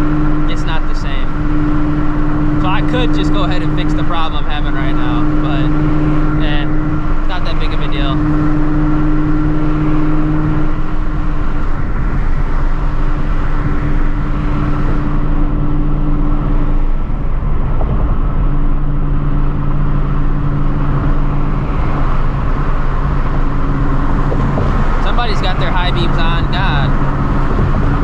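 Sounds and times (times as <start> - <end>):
car engine drone: 0.0 - 28.0
road and tyre noise: 0.0 - 28.0.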